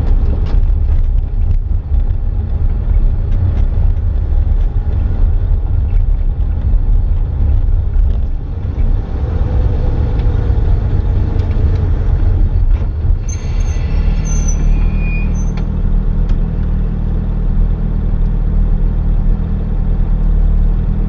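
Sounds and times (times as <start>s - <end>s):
short high squeaks: 13.2s - 15.8s.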